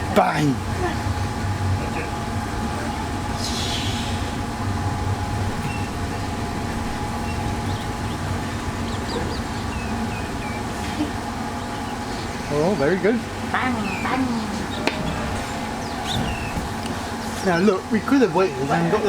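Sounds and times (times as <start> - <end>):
diesel locomotive rumbling: 0.0 - 19.0
air hiss: 3.4 - 4.5.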